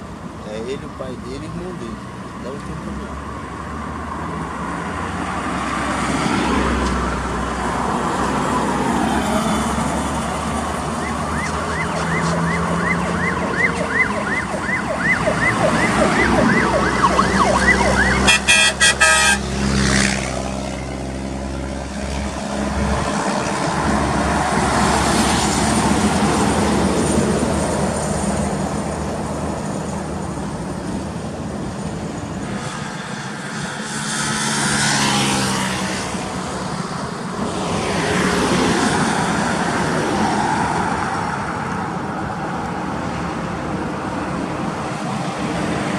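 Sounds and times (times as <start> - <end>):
truck engines running: 0.0 - 45.9
vehicles passing: 0.0 - 45.9
warbling siren-like horn: 10.9 - 19.5
stuttering horn blasts: 11.3 - 19.8.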